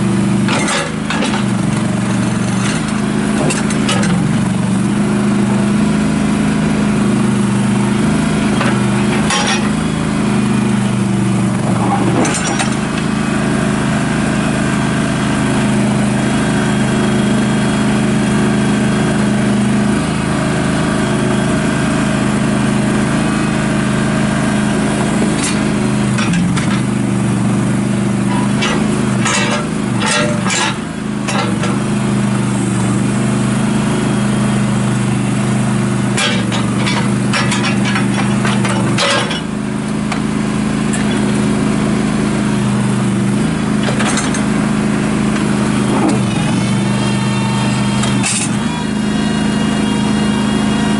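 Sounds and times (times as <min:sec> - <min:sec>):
gas engine running: 0:00.0 - 0:50.9.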